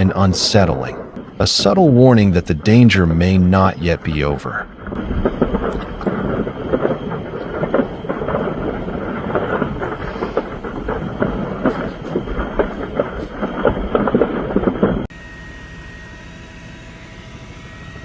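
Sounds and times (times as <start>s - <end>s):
rumbling background: 0.7s - 15.1s
large fire crackling and popping: 1.2s - 15.1s
small irregular bursts: 1.2s - 15.1s.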